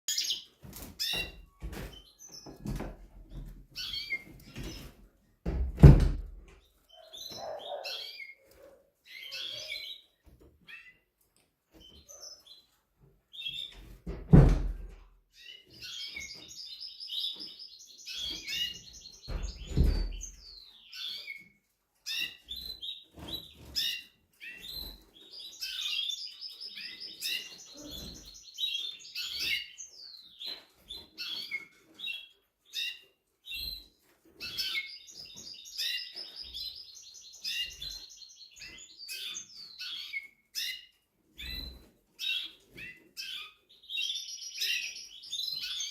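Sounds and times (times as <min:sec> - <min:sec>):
canary singing trills: 0:03.8 - 0:04.8, 0:06.7 - 0:11.0, 0:15.4 - 0:45.9.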